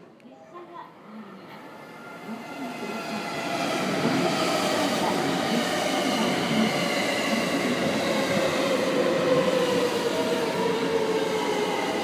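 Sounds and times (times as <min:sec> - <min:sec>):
train wheels rumbling on rail: 0:02.4 - 0:12.0.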